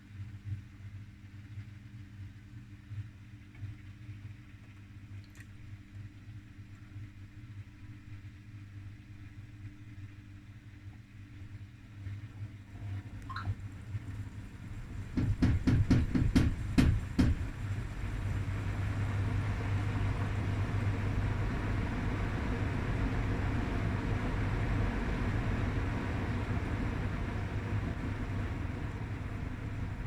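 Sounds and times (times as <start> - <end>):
washing machine humming and rushing: 11.6 - 30.0
washing machine sharp knocks: 15.2 - 17.5.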